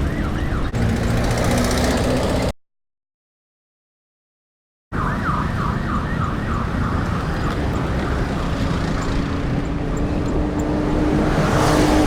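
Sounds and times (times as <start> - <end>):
wind: 0.0 - 2.5, 4.9 - 12.0
road rumble: 0.0 - 2.6, 4.9 - 12.0.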